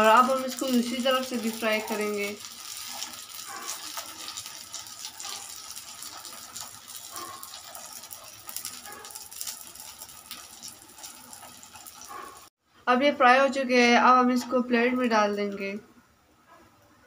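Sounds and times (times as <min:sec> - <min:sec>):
patties sizzling in oil: 0:00.0 - 0:12.5.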